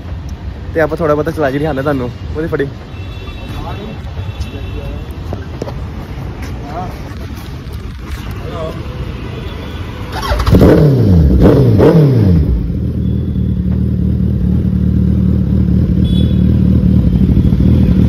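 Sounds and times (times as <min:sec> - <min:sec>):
motorcycle engine revving and idling: 0:10.1 - 0:18.0.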